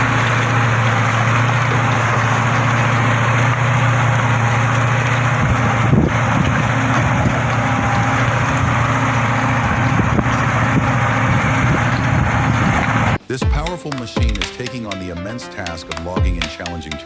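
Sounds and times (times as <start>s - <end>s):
heavy vehicle engine humming: 0.0s - 13.4s.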